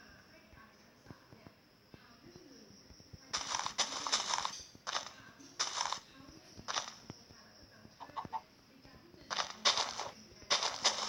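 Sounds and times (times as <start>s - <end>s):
chicken clucking: 8.0s - 8.4s.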